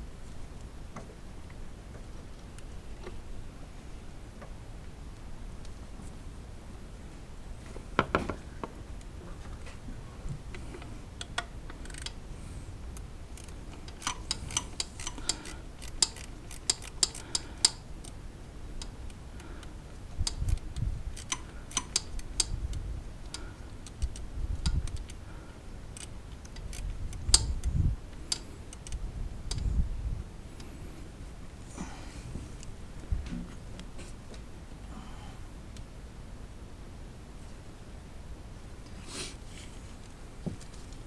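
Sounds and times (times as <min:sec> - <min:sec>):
hand ratchet clicking: 0:11.8 - 0:12.2, 0:13.3 - 0:17.8, 0:20.2 - 0:22.6.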